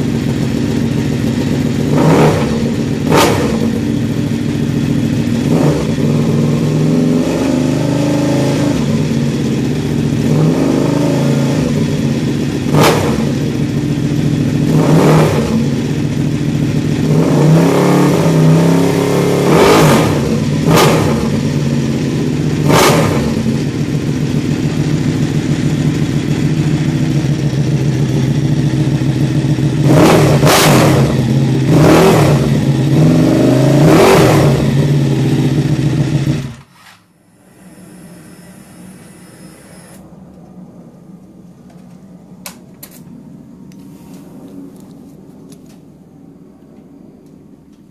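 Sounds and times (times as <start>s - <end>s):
motorcycle engine idling: 0.0s - 8.0s, 8.7s - 17.4s, 20.3s - 31.7s, 32.3s - 33.3s, 34.5s - 36.6s.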